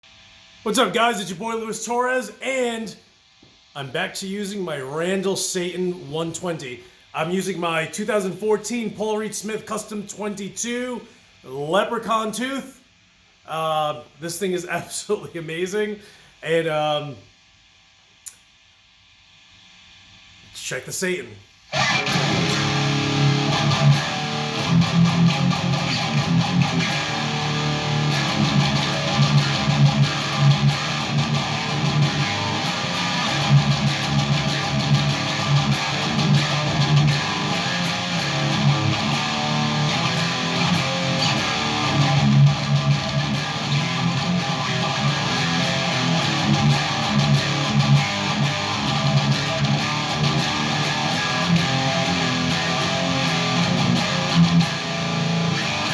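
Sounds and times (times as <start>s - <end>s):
distorted electric guitar riffs: 21.7s - 55.9s.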